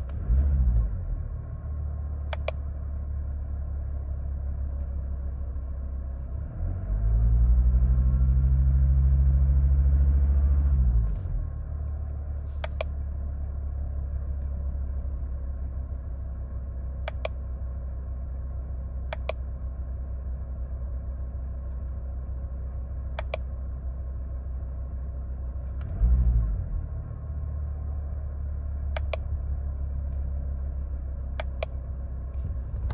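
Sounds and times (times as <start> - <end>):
car engine revving and idling: 0.0 - 32.9
sharp clicks: 2.3 - 2.6, 12.5 - 12.9, 17.1 - 17.4, 19.1 - 19.4, 23.2 - 23.4, 29.0 - 29.3, 31.4 - 31.8.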